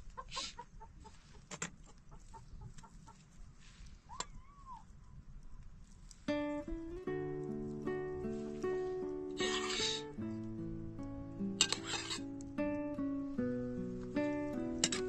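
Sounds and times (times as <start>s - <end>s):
chickens clucking: 0.0s - 3.4s.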